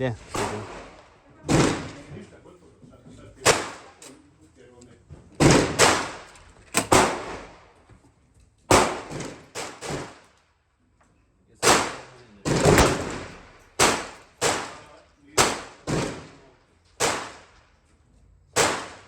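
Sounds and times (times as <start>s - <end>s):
gunshots echoing: 0.3s - 2.1s, 3.4s - 4.0s, 5.4s - 7.7s, 8.7s - 10.2s, 11.6s - 17.6s, 18.6s - 19.0s.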